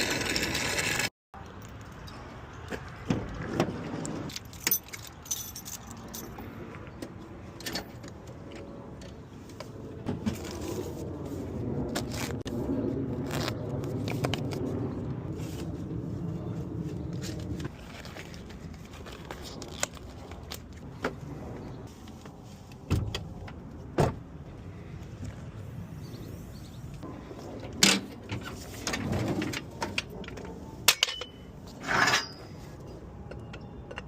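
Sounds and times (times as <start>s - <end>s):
metallic clinks and jingles: 4.3s - 6.6s.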